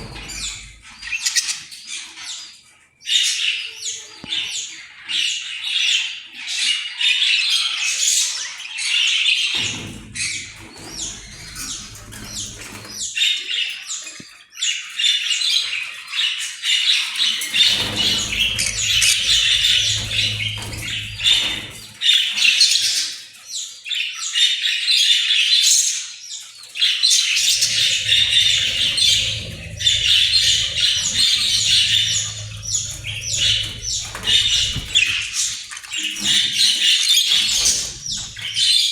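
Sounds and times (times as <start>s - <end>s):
low hum: 17.7s - 22.0s, 27.5s - 36.5s, 37.4s - 38.8s
budgerigars chattering: 27.4s - 38.8s.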